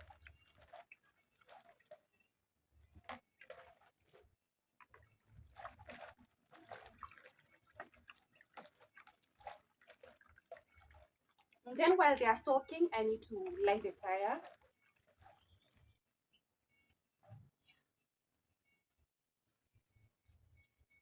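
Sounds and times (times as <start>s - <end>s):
water splashing and dripping: 0.0s - 16.1s.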